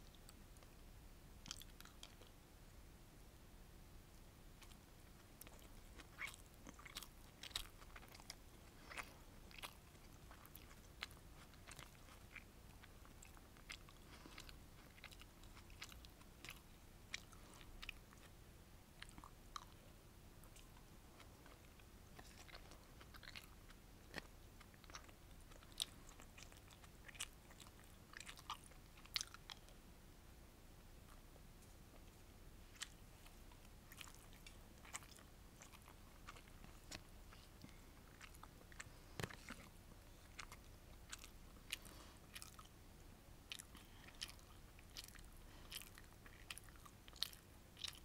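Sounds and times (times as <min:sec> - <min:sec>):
close chewing: 0:01.4 - 0:02.4, 0:04.6 - 0:29.8, 0:31.0 - 0:42.8, 0:43.4 - 0:48.0.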